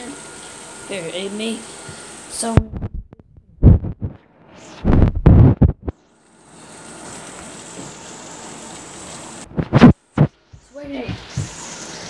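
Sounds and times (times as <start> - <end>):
loud low thumps: 2.6 - 4.2, 4.8 - 5.9
rain falling: 6.3 - 9.5.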